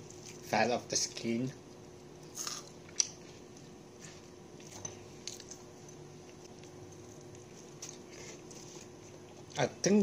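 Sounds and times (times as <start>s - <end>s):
low steady hum: 0.0s - 10.0s
chewing crispy chicken skin: 4.6s - 9.7s.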